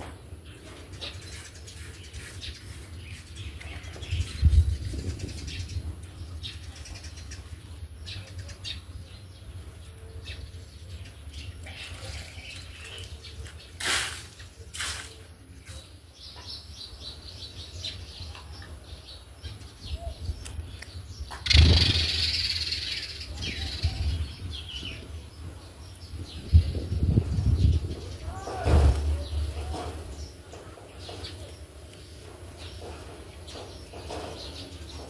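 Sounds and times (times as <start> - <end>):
sparrows chirping: 0.0 - 35.0
brief loud noises: 28.3 - 29.9.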